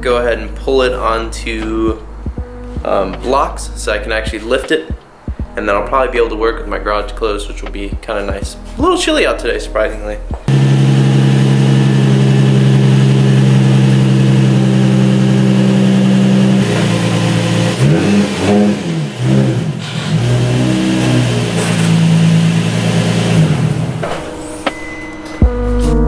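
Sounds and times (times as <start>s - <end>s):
car engine idling and revving: 10.4s - 24.4s.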